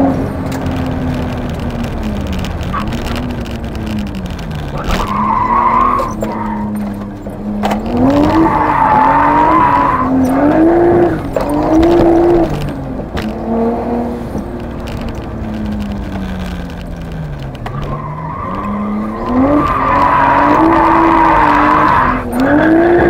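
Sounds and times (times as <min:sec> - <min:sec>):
car engine revving hard: 0:00.0 - 0:14.4, 0:17.7 - 0:23.0
tyres squealing: 0:04.7 - 0:07.3.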